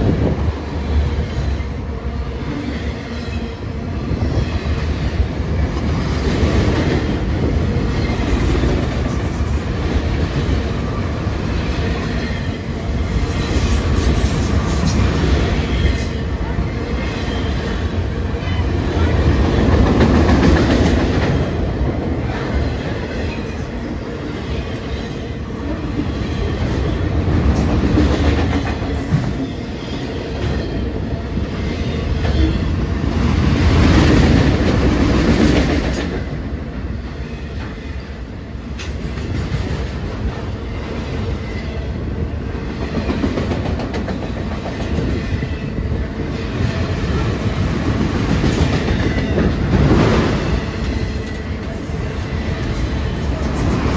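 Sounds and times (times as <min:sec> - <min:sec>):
train wheels rumbling on rail: 0:00.0 - 0:53.9
rhythmic clickety-clack: 0:42.7 - 0:45.8.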